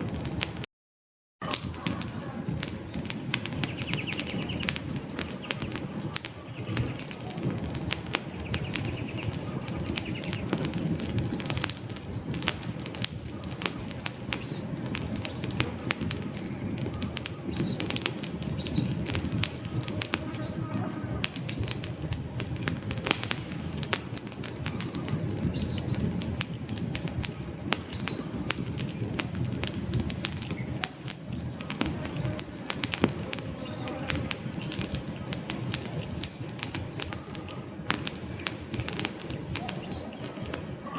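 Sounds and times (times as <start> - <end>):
campfire flames rushing: 0.0 - 0.7, 1.4 - 40.9
logs crackling and popping: 0.0 - 0.7, 1.4 - 40.9
bird chirps: 2.8 - 7.6, 8.2 - 11.1, 12.1 - 21.8, 24.7 - 26.1, 27.8 - 37.6, 39.5 - 40.9.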